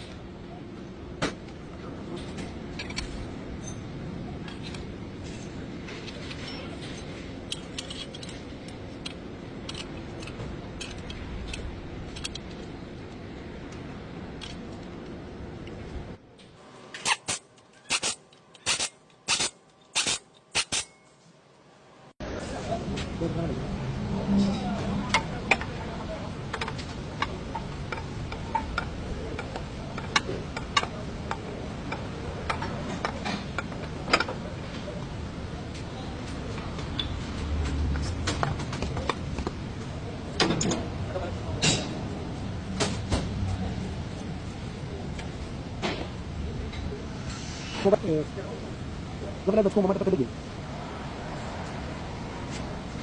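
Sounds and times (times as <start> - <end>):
low background noise: 0.0 - 53.0
metallic clicks and clinks: 6.1 - 12.5.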